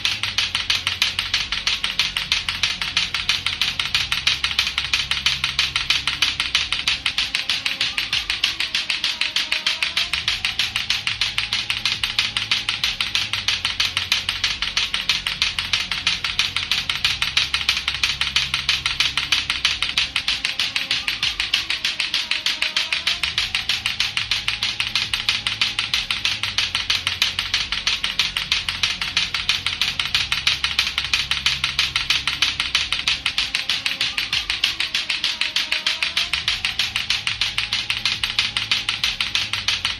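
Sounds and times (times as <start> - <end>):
low repeating musical backing: 0.0 - 39.9
plastic clacker balls clacking: 0.0 - 39.9.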